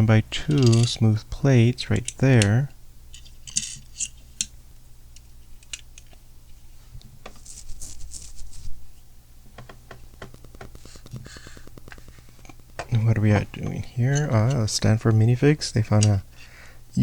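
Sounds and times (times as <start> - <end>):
plastic pieces clicking: 0.5 - 1.0, 9.7 - 14.7
rustle of plastic pieces: 7.3 - 8.8.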